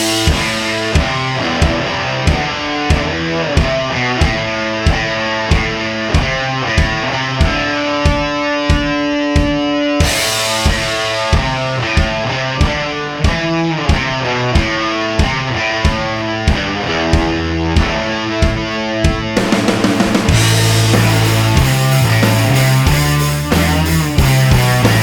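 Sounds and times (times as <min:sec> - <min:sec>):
music with steady beat: 0:00.0 - 0:25.0
held pitched notes: 0:19.4 - 0:25.0.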